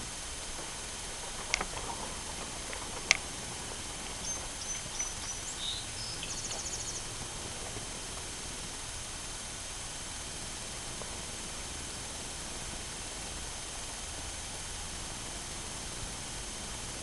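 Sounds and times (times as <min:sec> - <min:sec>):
background hiss: 0:00.0 - 0:17.0
sharp clicks: 0:01.4 - 0:02.0, 0:02.7 - 0:03.3
songbird whistling and trilling: 0:04.2 - 0:07.1.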